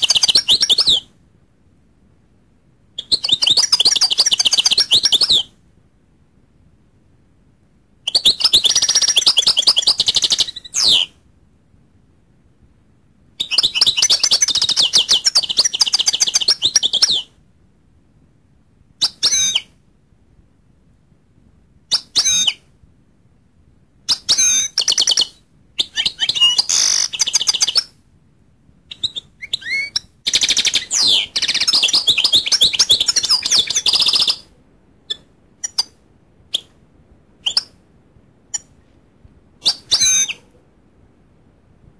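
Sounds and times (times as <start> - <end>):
finch twittering song: 0.0 - 1.1, 3.0 - 5.5, 8.1 - 11.1, 13.4 - 17.3, 19.0 - 19.7, 24.1 - 27.9, 28.9 - 34.5, 35.1 - 36.8, 37.4 - 37.8, 39.6 - 40.5.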